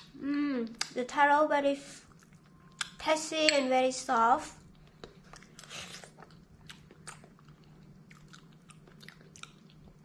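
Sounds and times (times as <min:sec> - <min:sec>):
faint low hum: 0:00.0 - 0:10.0
person chewing: 0:04.7 - 0:10.0.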